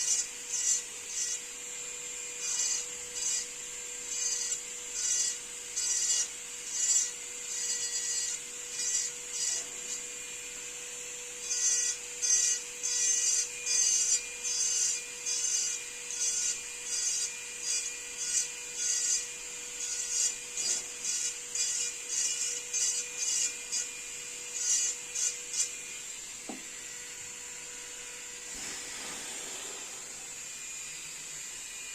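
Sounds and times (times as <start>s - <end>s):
hand sanding wood: 28.4s - 30.4s
steady hiss: 28.4s - 30.4s.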